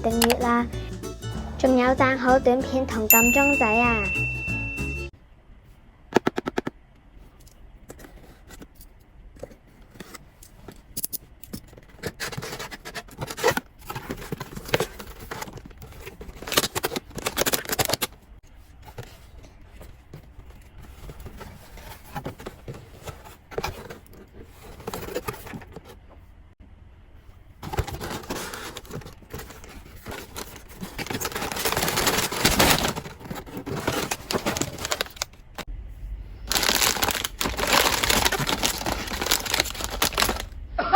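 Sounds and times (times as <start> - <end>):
packaging clicks and scrapes: 7.3 - 26.0, 27.6 - 35.7, 36.5 - 40.6
packaging rustling and crinkling: 11.6 - 26.0, 27.6 - 35.7, 36.5 - 40.6.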